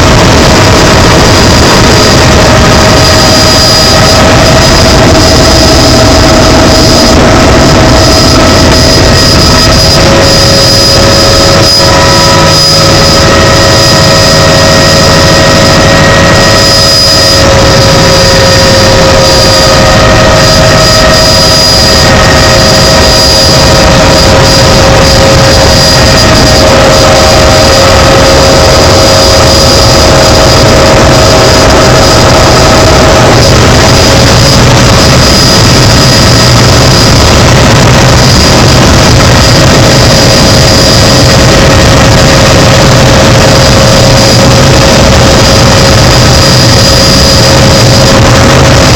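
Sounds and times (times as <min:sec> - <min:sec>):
helicopter engine and rotor noise: 0:00.0 - 0:48.9.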